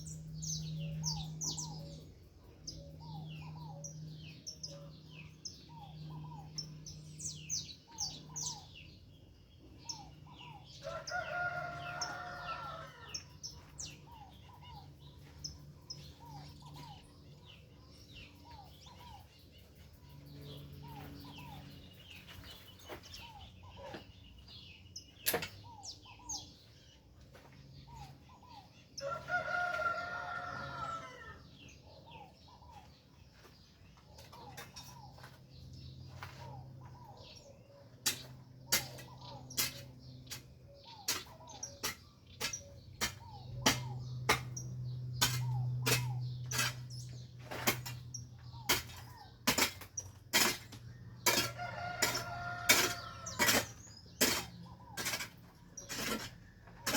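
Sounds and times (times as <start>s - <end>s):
songbirds chirping and singing: 0.0s - 56.9s
rooster crowing: 10.7s - 13.6s, 29.0s - 31.6s, 51.4s - 53.8s.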